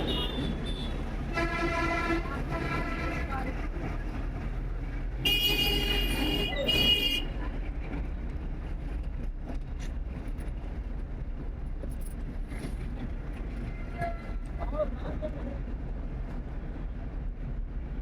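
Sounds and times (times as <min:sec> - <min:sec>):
high-pitched vehicle horn: 0:00.0 - 0:03.3, 0:05.2 - 0:07.3
street traffic engine rumble: 0:00.0 - 0:18.0.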